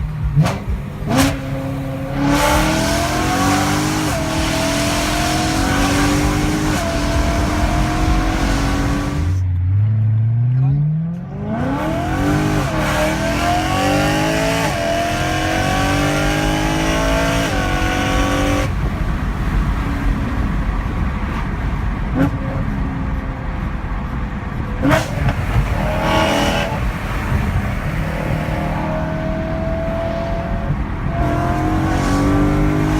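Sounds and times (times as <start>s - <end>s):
car engine accelerating hard: 0.0s - 32.9s.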